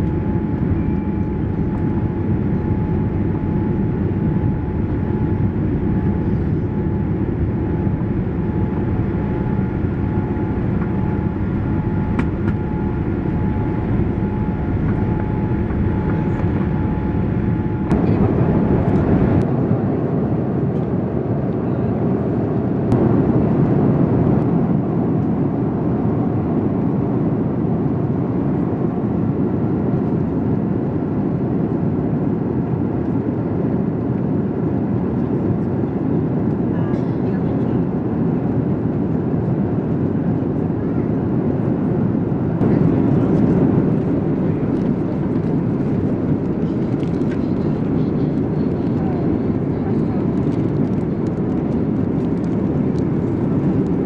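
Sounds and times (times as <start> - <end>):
steady hum: 0.0 - 19.5, 42.5 - 54.0
airplane cabin engine noise: 0.0 - 54.0.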